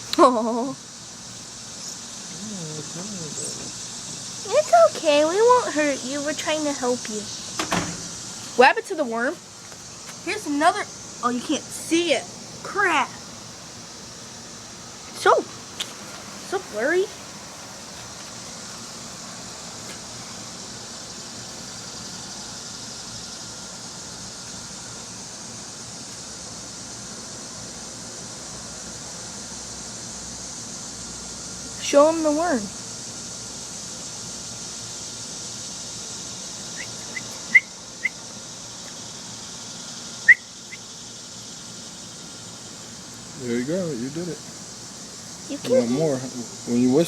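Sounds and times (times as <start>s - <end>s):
steady background noise: 0.0s - 47.0s
person whistling chirps: 40.3s - 40.5s.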